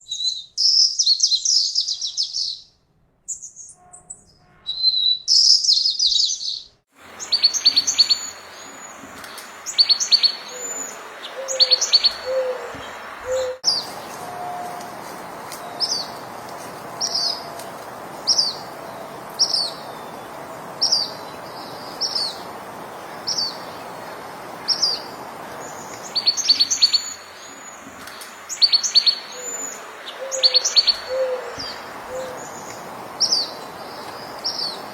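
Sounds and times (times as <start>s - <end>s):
steady background hiss: 6.9s - 34.9s
bird trilling: 9.7s - 14.8s, 28.5s - 32.5s.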